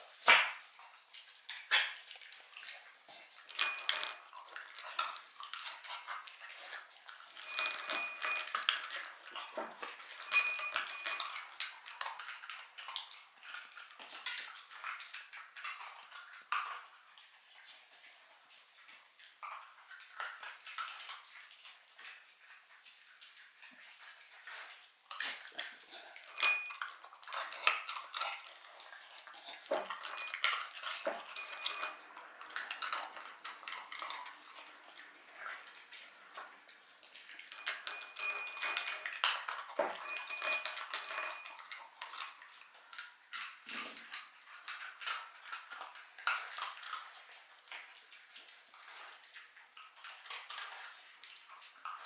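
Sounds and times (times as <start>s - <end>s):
dog eating treats clattering: 1.2s - 17.7s, 23.4s - 52.0s.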